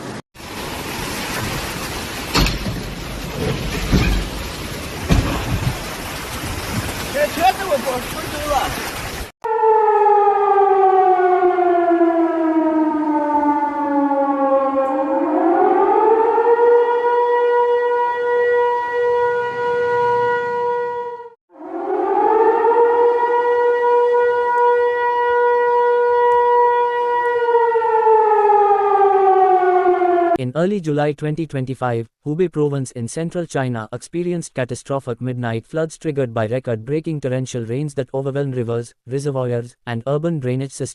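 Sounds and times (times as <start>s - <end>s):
warning siren wailing: 9.4s - 30.4s.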